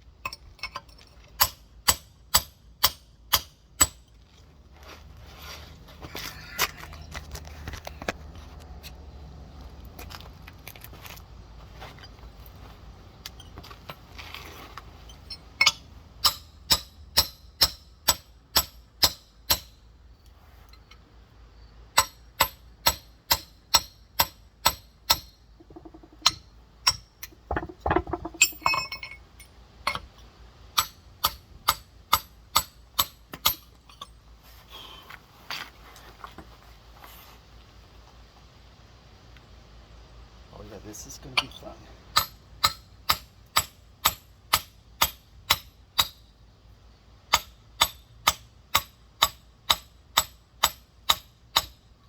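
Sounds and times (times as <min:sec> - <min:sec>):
hammer clinking on rock: 0:15.2 - 0:19.7, 0:22.0 - 0:30.1, 0:42.2 - 0:46.2.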